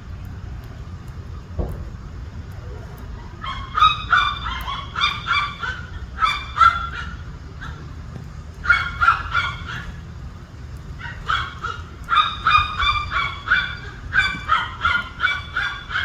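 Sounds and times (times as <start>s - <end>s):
birds honking: 3.2s - 16.0s.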